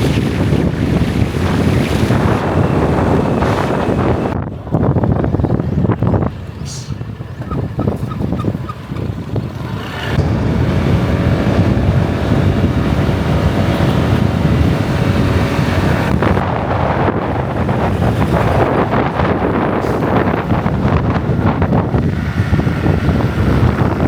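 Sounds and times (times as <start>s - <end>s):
wind buffeting microphone: 0.0s - 24.0s
scooter engine running: 5.2s - 19.6s.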